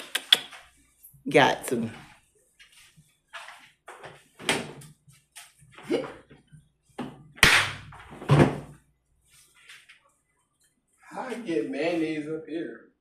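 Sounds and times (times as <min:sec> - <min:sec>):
bumps and knocks in kitchen: 0:06.1 - 0:08.8.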